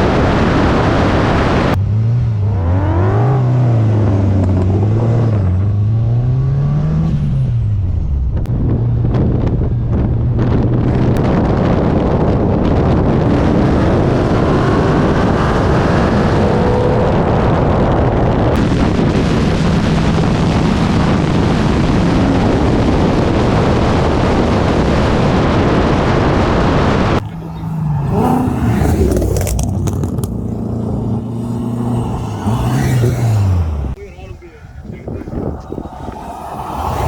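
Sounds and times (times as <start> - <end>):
wind and road noise: 0.0 - 37.0
car engine running: 18.0 - 36.8.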